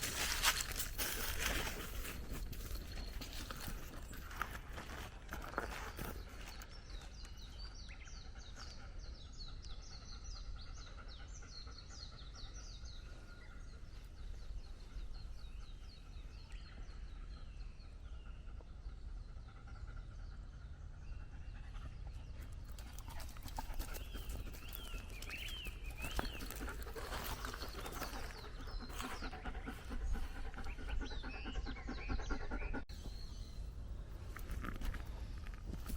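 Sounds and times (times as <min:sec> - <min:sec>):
footsteps on a path: 0:00.0 - 0:07.2, 0:22.7 - 0:31.1, 0:34.2 - 0:35.9
birds chirping: 0:00.0 - 0:35.9
dog panting: 0:21.3 - 0:32.9.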